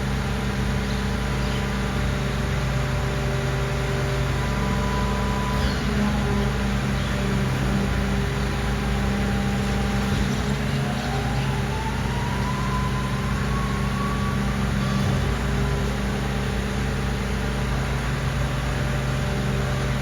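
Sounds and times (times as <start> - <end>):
garbage truck diesel engine running: 0.0 - 20.0
thin whine rising in pitch: 3.7 - 16.3.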